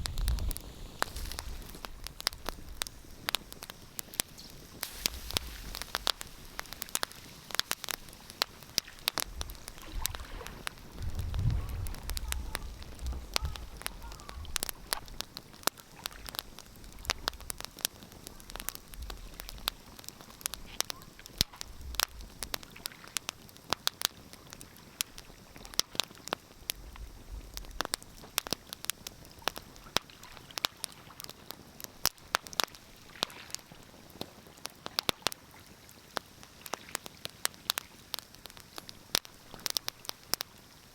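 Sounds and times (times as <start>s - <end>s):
wood fire crackling: 0.0s - 40.9s
low rumble: 11.0s - 13.7s.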